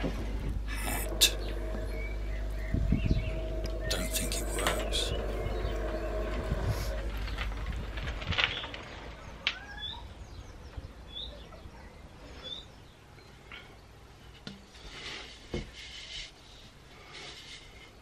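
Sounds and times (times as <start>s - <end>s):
low background hum: 0.0s - 10.8s
small bird chirping: 0.8s - 7.5s.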